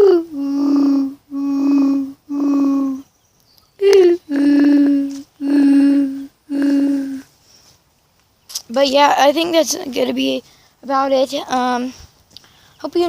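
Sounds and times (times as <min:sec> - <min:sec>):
person humming dove coos: 0:00.0 - 0:03.0, 0:03.8 - 0:07.3.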